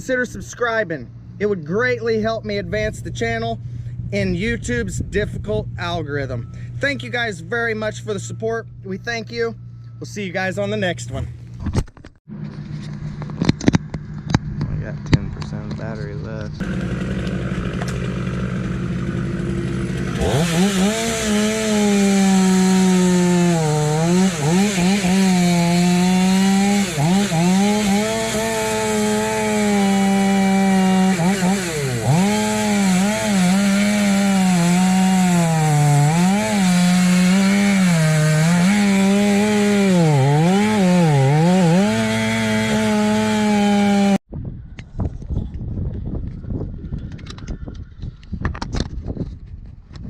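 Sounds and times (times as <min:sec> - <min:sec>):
chainsaw cutting wood: 0:16.6 - 0:44.2.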